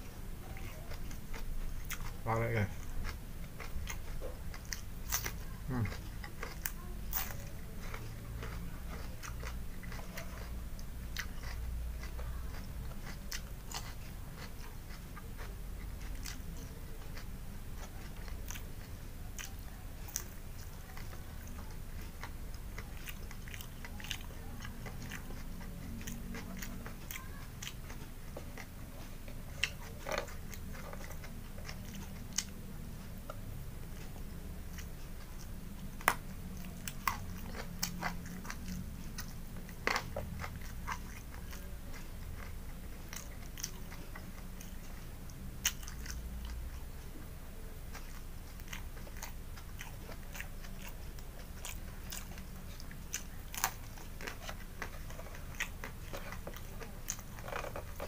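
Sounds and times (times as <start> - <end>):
chewing crunchy food: 0.0 - 58.0
low steady hum: 0.0 - 58.0.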